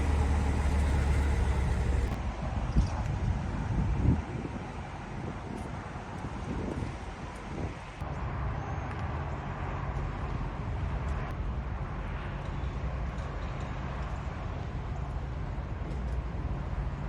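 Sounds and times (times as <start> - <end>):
vehicle engine rumbling: 0.0 - 2.3.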